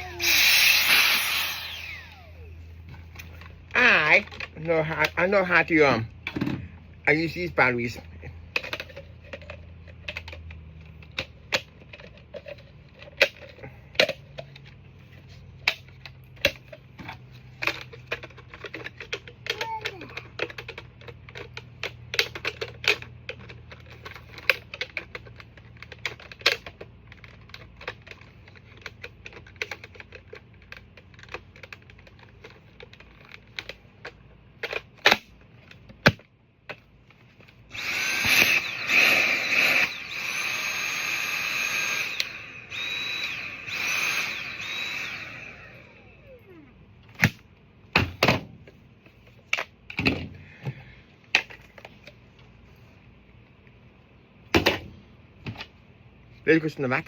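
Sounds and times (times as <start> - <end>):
small electric motor whirring: 0.0 - 2.8, 37.7 - 46.7
parts clicking and clattering: 8.4 - 46.0, 47.0 - 52.8.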